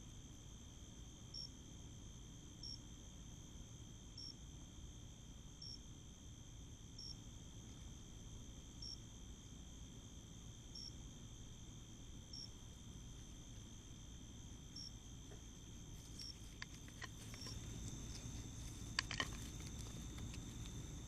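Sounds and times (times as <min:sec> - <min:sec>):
insect chirp: 0:00.0 - 0:21.0
insects trilling: 0:00.0 - 0:21.0
faint clicks and rustles: 0:14.6 - 0:21.0.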